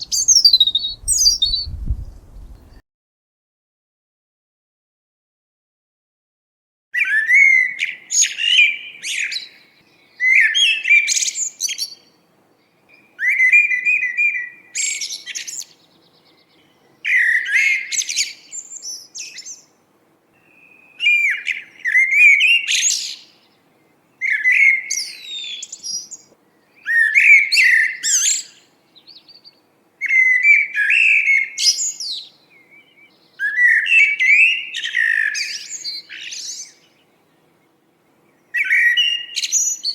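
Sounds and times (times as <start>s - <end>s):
songbird warbling: 0.0s - 2.8s.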